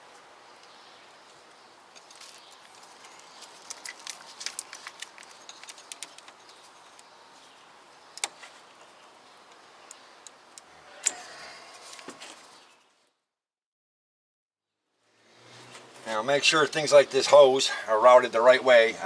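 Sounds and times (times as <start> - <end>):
clicks and taps of hose fittings: 3.1 - 7.1.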